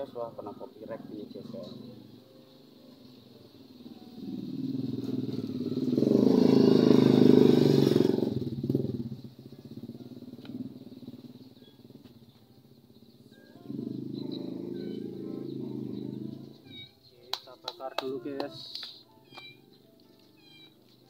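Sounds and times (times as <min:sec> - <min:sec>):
motorcycle passing by: 0:00.0 - 0:16.8.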